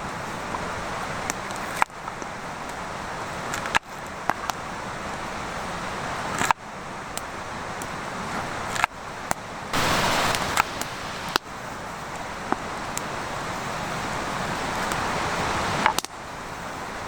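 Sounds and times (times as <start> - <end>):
campfire hissing and crackling: 9.8 - 17.0.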